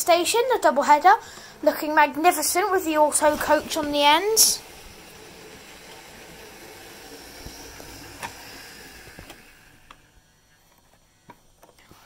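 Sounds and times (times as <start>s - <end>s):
model train whirring on track: 2.3s - 10.4s.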